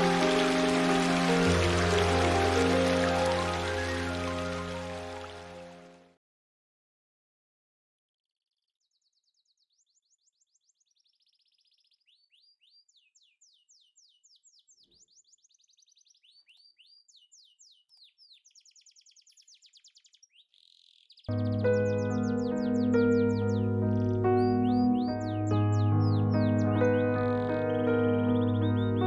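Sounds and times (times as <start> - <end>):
songbird trills: 0.0 - 5.3, 8.8 - 29.0
music: 0.0 - 6.2, 21.3 - 29.0.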